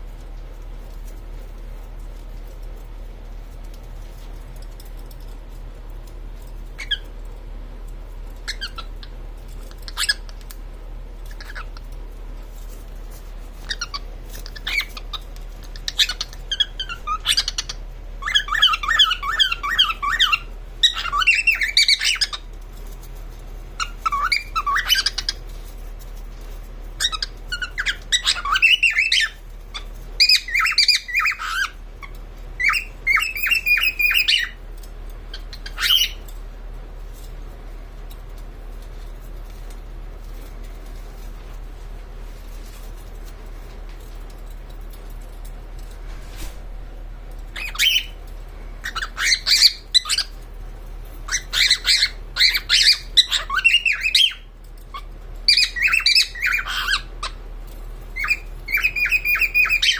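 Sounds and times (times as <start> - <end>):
cockatiel chirping: 6.8 - 7.1, 8.4 - 10.5, 11.2 - 11.9, 13.6 - 22.5, 23.8 - 25.4, 27.0 - 34.6, 35.3 - 36.3, 47.5 - 48.2, 48.8 - 50.4, 51.2 - 57.4, 58.2 - 59.9.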